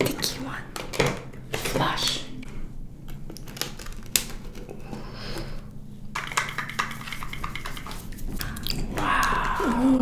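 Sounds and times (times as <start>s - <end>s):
plastic clicks and rattles: 0.0s - 1.9s, 3.0s - 4.9s, 6.2s - 8.8s.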